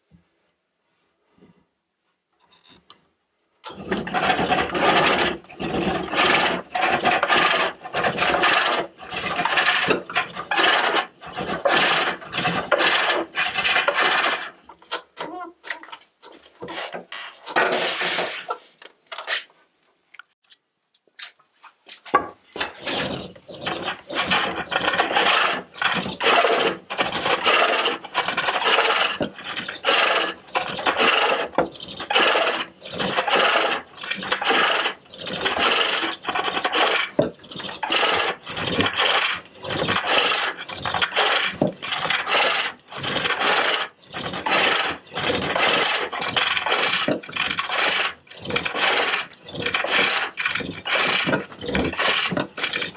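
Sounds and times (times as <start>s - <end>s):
hook tool rasping on wood: 3.7s - 14.7s, 22.6s - 52.9s.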